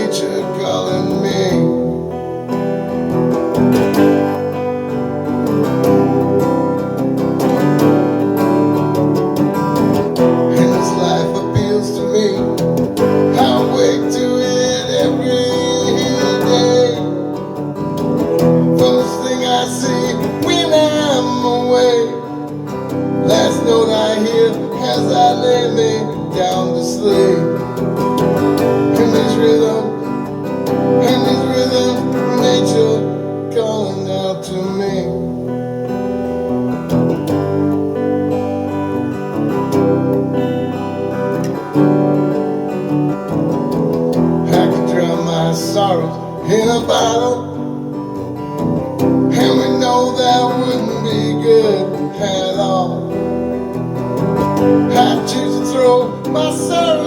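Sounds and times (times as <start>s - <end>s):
person singing: 0.0s - 2.3s, 10.2s - 17.6s, 18.2s - 35.5s, 44.1s - 48.3s, 49.2s - 53.8s, 54.4s - 57.0s
strummed acoustic guitar: 0.0s - 57.0s.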